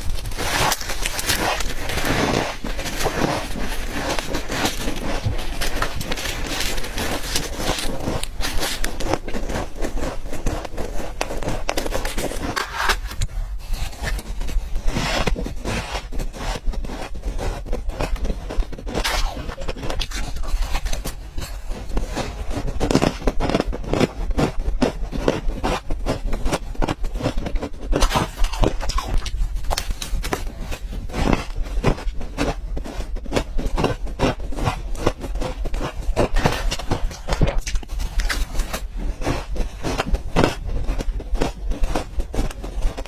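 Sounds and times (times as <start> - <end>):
ice crunching while chewed: 0.0 - 43.0.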